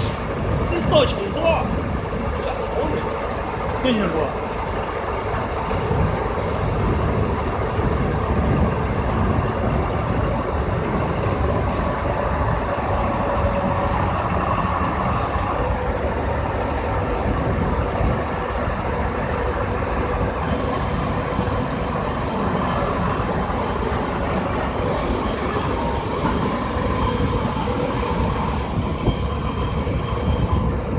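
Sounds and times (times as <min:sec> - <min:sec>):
crane engine and hydraulics running: 0:00.0 - 0:30.9
whining tone: 0:20.4 - 0:30.9.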